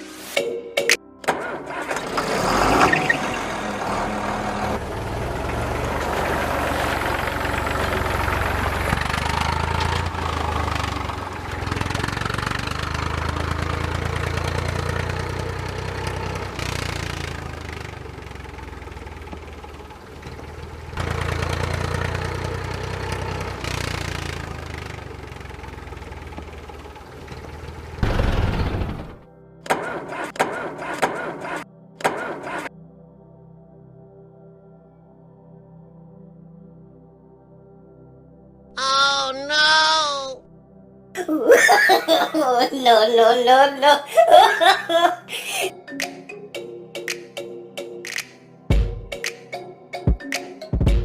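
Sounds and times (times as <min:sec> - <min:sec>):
engine starting and running: 0:01.2 - 0:32.7.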